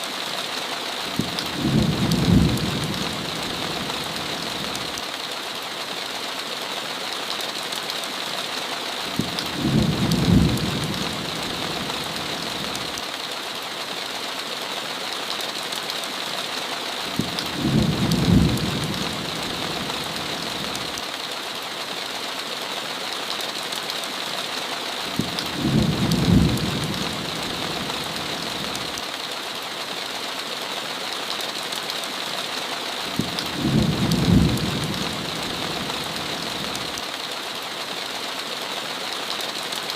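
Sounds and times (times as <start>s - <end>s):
heavy rain hiss: 0.0s - 39.9s
low rumbles of thunder: 1.2s - 4.7s, 9.2s - 12.7s, 17.2s - 20.2s, 25.2s - 28.2s, 33.2s - 36.7s.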